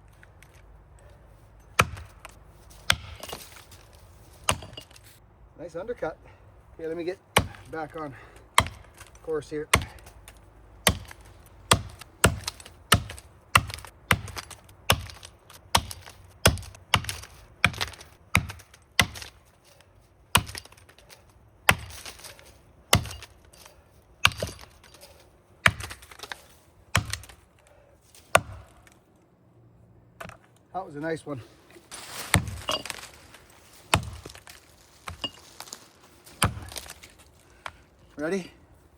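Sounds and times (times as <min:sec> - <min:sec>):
axe chopping tree trunk: 0:01.7 - 0:05.0, 0:07.3 - 0:19.5, 0:20.3 - 0:27.5, 0:28.2 - 0:29.0, 0:32.1 - 0:33.2, 0:33.8 - 0:37.8.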